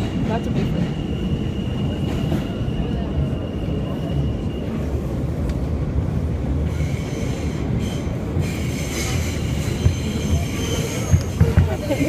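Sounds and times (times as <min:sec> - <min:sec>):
wheels rumbling on rail: 0:00.0 - 0:12.0
high-pitched wheel squeal: 0:06.8 - 0:12.0.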